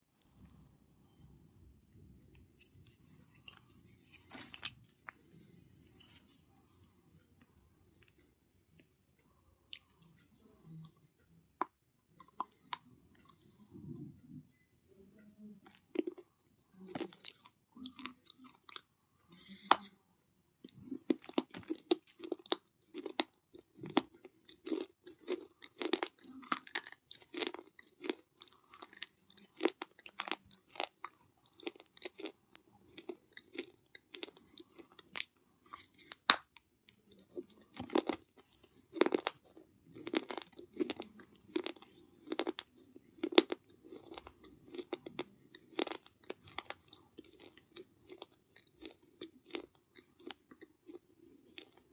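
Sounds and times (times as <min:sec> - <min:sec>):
crunching and chewing: 0:02.3 - 0:06.5, 0:15.6 - 0:20.0, 0:20.6 - 0:51.9.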